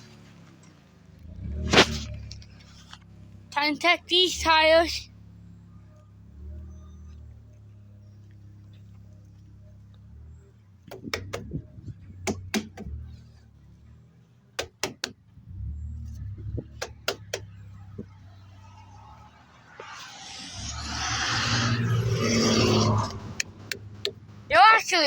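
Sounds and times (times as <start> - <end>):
low engine hum: 0.0 - 24.9
hand smacking truck tires: 10.8 - 13.1, 14.6 - 15.4, 16.2 - 18.1.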